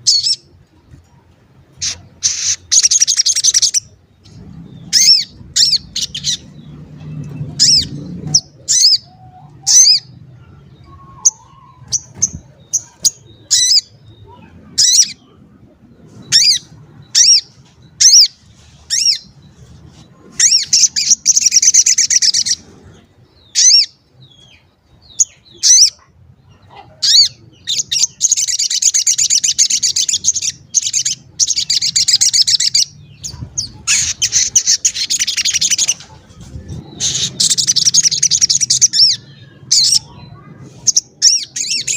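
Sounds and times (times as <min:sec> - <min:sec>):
songbird chirping: 0:00.0 - 0:41.9
bird chattering trill: 0:01.8 - 0:04.0, 0:26.7 - 0:36.2, 0:36.8 - 0:41.9.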